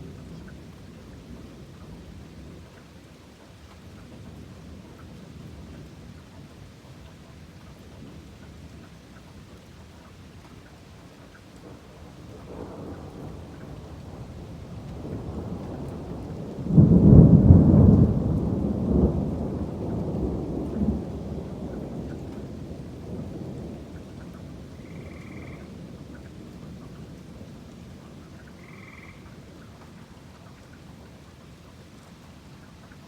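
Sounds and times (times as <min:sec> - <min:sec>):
steady rain: 0:00.0 - 0:33.0
thunder rolling: 0:12.4 - 0:26.0.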